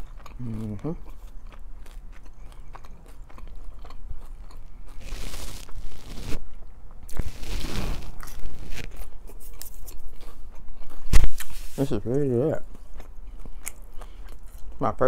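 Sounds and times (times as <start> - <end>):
wet chewing and smacking: 0.0 - 5.1, 8.2 - 14.9
crisp pastry crunches: 0.0 - 11.5
hissing: 5.0 - 6.4, 7.1 - 8.9.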